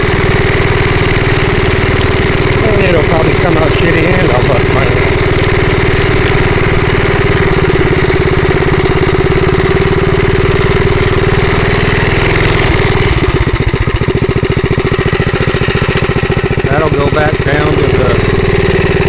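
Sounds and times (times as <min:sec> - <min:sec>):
minibike engine running: 0:00.0 - 0:19.0.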